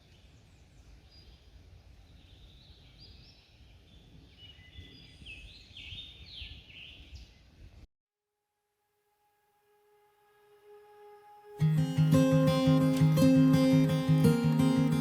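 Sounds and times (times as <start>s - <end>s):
songbirds chirping and trilling: 0.0s - 7.8s.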